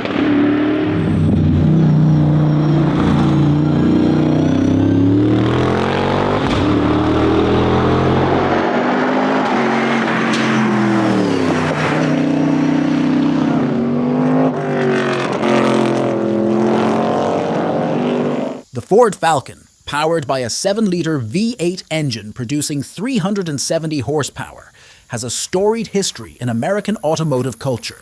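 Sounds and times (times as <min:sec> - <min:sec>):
car engine accelerating: 0:00.0 - 0:18.7.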